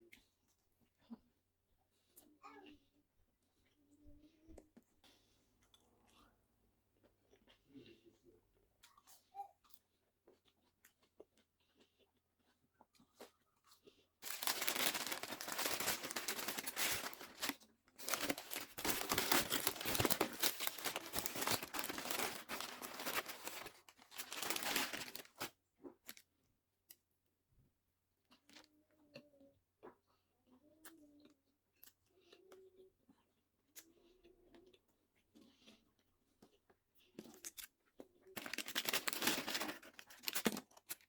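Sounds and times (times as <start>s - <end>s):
food packaging crinkling and tearing: 14.2s - 25.5s, 38.3s - 41.0s.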